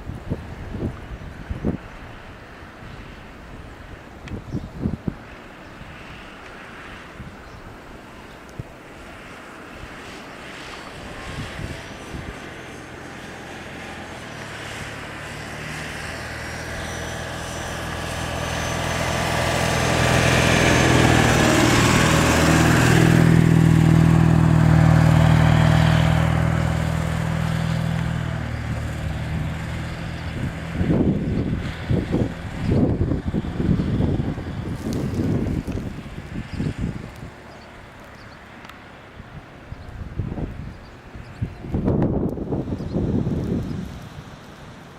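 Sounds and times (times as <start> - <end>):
truck engine working under load: 11.0 - 44.9.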